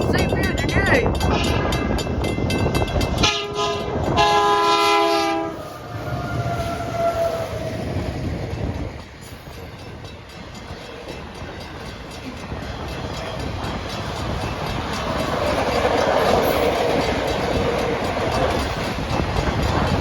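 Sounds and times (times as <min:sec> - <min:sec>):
train rumbling and clattering past: 0:00.0 - 0:20.0
train air horn blasts: 0:03.2 - 0:07.8.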